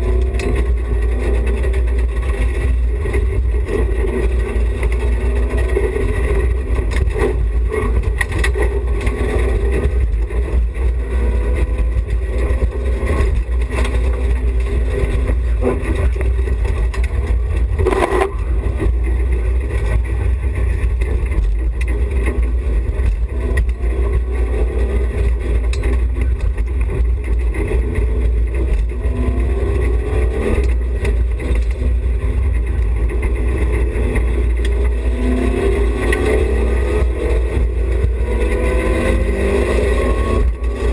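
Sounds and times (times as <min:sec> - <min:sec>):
car engine revving: 0:00.0 - 0:40.9
road and wind rumble: 0:00.0 - 0:40.9.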